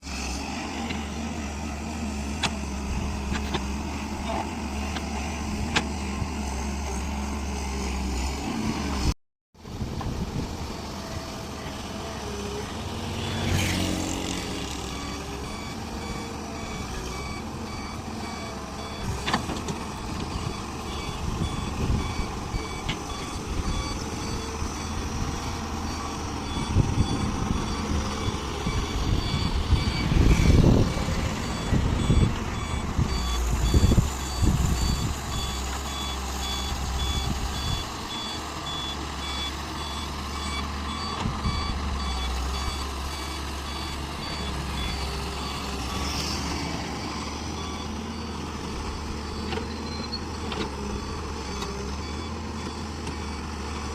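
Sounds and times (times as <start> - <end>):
excavator diesel engine running: 0.0 - 53.9
reversing alarm beeping: 13.2 - 53.9.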